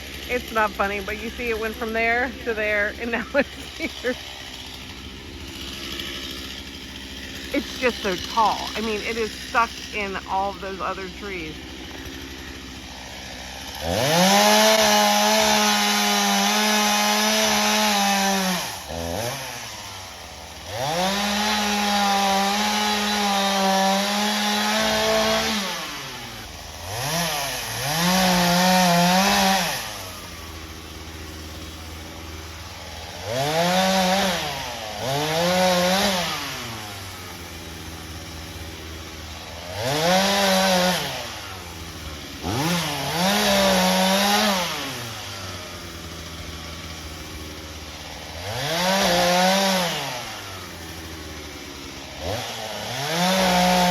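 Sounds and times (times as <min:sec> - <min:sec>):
chainsaw revving: 0:00.0 - 0:53.9.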